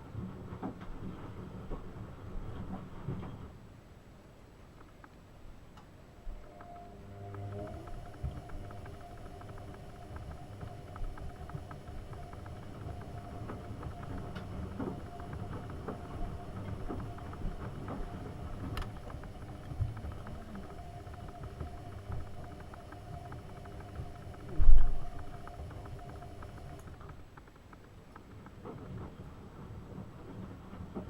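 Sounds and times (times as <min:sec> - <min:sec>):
faint motor hum: 0:05.6 - 0:31.0
sharp ticks: 0:06.4 - 0:29.0.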